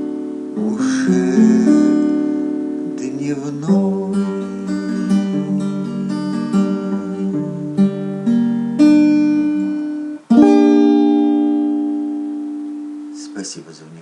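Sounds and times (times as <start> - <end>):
acoustic guitar playing: 0.0 - 14.0.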